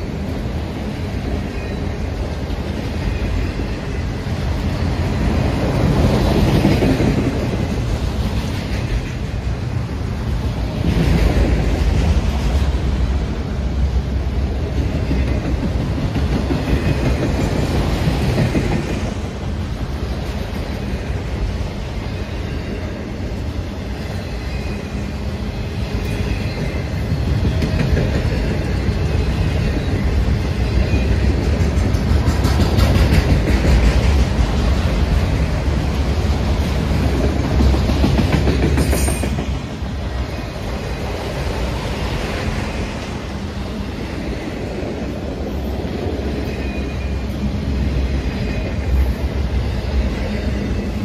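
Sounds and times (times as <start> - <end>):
freight train rolling past: 0.0 - 51.0
wheels clacking over rail joints: 26.1 - 40.4.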